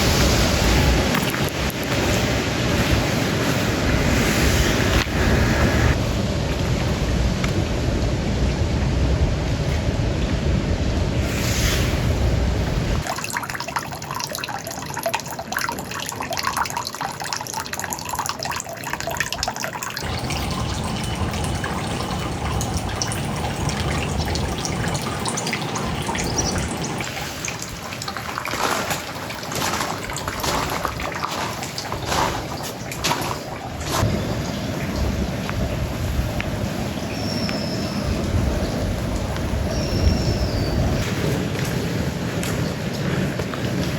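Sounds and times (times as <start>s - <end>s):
rain dripping on hard surfaces: 13.0s - 43.9s.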